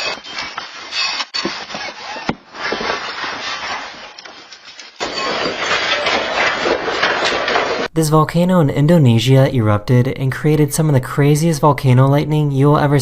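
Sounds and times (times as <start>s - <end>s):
earthquake rattling and clattering: 0.0s - 7.9s.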